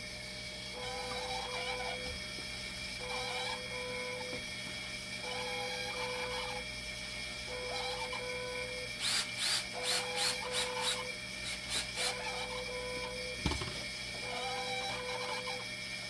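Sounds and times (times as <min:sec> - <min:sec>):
machine tone switching on and off: 0:07.4 - 0:15.7
medical machine pumps cycling: 0:07.4 - 0:15.9.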